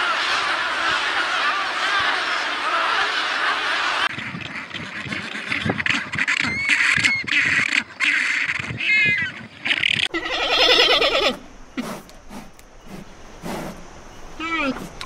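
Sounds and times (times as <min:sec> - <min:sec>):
penguins honking and braying: 0:00.0 - 0:11.4.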